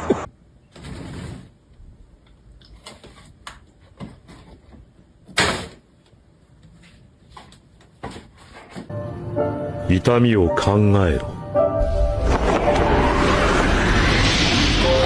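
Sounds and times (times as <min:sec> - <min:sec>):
noisy swish: 0:11.7 - 0:15.0.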